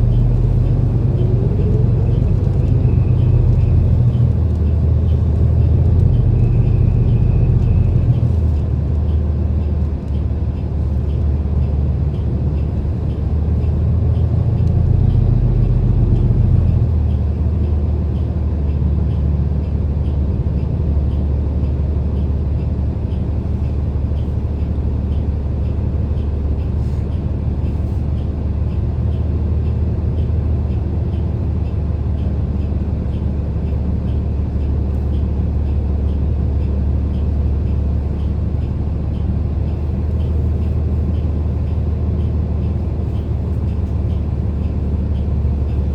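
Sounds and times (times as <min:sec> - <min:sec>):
bus engine and road rumble: 0:00.0 - 0:45.9.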